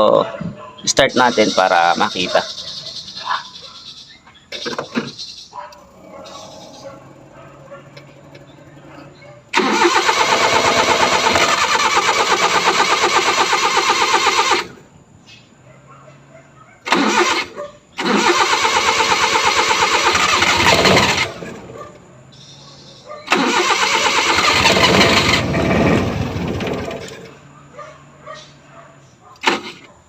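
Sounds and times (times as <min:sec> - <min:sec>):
engine starter cranking: 0:05.8 - 0:14.8, 0:16.8 - 0:22.0, 0:23.3 - 0:27.4, 0:29.4 - 0:29.9.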